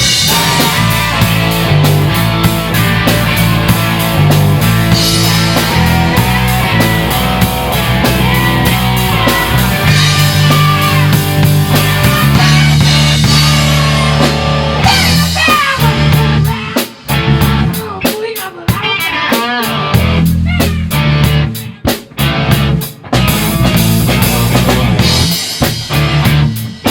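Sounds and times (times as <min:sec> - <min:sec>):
electric guitar lead with bent notes: 0:00.0 - 0:17.9, 0:18.8 - 0:26.8
bass guitar: 0:00.0 - 0:26.9
drum kit: 0:00.0 - 0:26.9.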